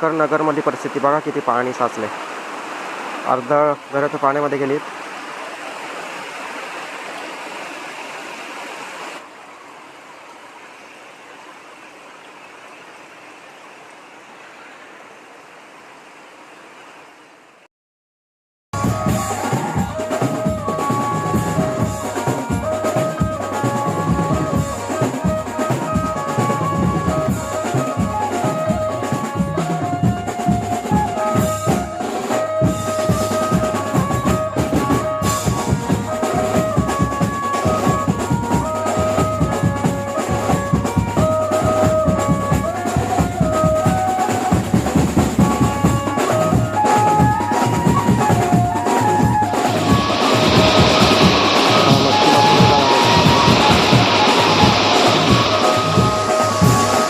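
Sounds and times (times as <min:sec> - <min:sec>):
band music with driving drums: 0:18.8 - 0:57.0.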